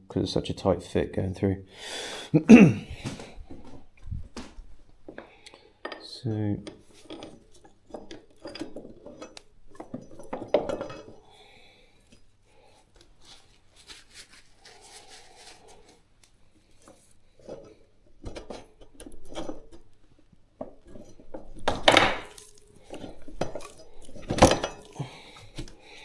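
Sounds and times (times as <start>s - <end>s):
metal parts clinking and knocking: 5.8s - 11.2s, 17.4s - 20.0s, 20.6s - 25.8s.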